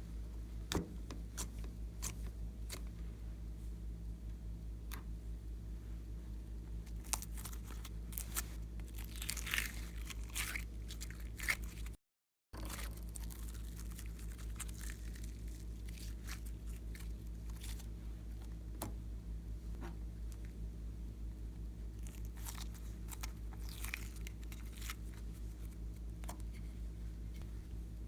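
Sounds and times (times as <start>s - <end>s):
steady low hum: 0.0s - 12.0s, 12.6s - 28.0s
slime crunching and crackling: 6.8s - 12.0s, 12.6s - 18.5s, 21.9s - 26.6s.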